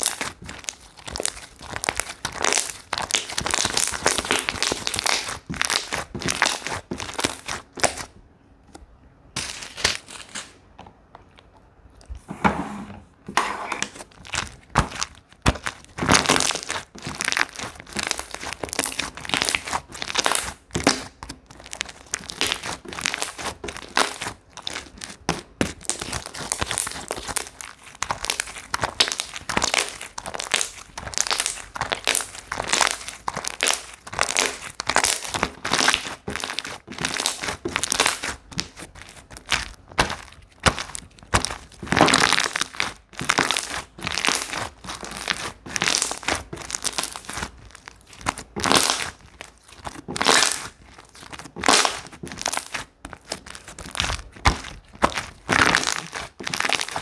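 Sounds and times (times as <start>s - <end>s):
slime squishing by hand: 0.0s - 57.0s.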